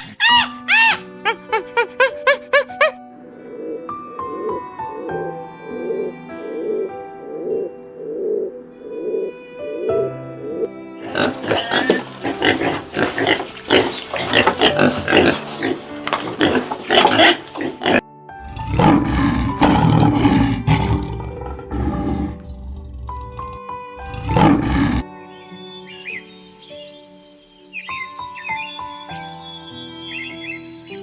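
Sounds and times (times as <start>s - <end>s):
animal calls: 0.0s - 1.2s, 11.0s - 25.0s
background music: 0.0s - 31.0s.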